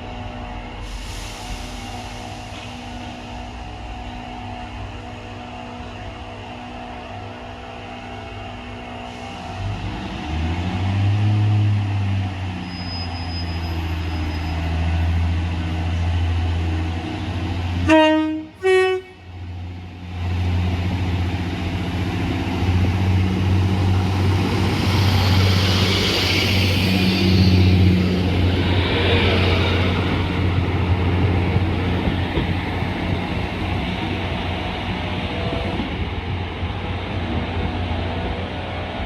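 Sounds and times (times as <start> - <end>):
train engine drone: 0.0 - 39.0
hiss: 0.8 - 3.4, 24.5 - 28.4
train horn two notes: 17.8 - 19.3.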